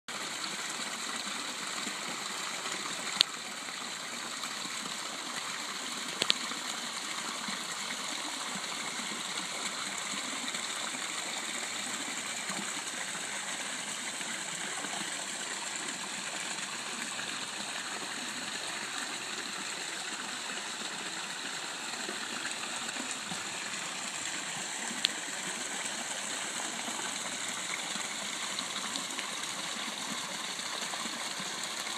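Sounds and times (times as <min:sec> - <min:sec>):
water splashing into pond: 0:05.0 - 0:06.9.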